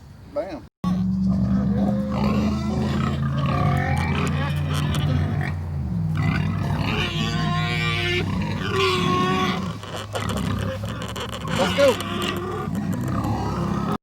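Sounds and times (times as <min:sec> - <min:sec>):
hogs grunting and squealing: 0:00.8 - 0:14.0
low hum: 0:00.9 - 0:08.6.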